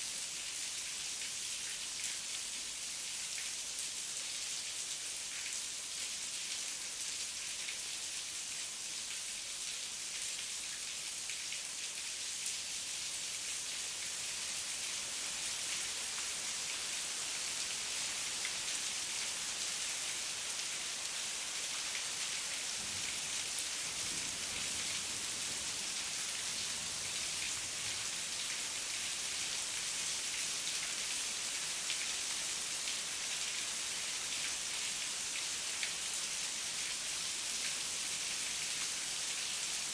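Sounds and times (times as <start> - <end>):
heavy rain falling: 22.6 - 28.4.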